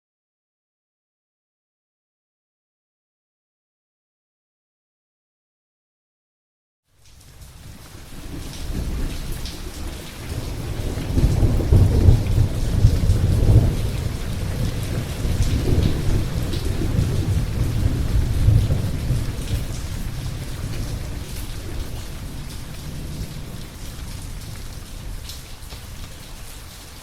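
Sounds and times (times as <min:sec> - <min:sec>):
rain falling: 0:06.9 - 0:27.0
rolling thunder: 0:08.1 - 0:26.3.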